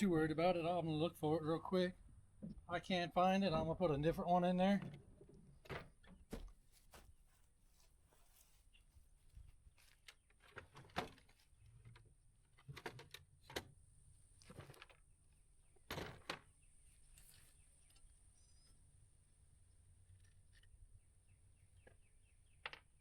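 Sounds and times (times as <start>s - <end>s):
faint knocks and scuffs of handling: 6.3s - 11.6s.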